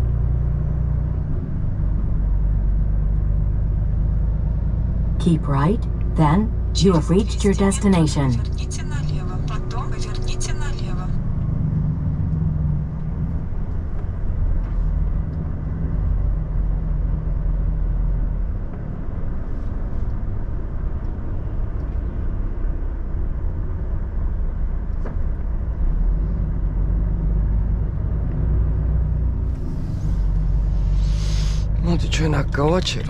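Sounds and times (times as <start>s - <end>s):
diesel truck engine running: 0.0s - 33.0s
short hiss: 31.0s - 31.7s.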